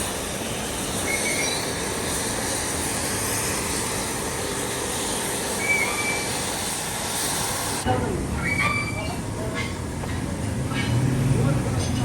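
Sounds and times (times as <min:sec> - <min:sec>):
workshop machinery running: 0:00.0 - 0:12.0
brief high squeaks: 0:08.4 - 0:09.8.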